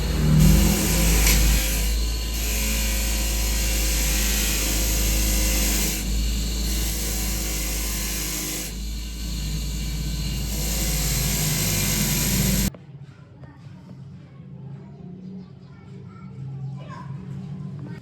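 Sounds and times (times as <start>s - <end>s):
low machine hum: 0.0s - 12.7s.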